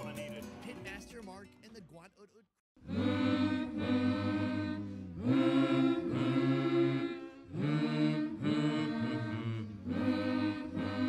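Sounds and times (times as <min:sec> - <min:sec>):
low chanted choral voices: 0:02.8 - 0:11.0.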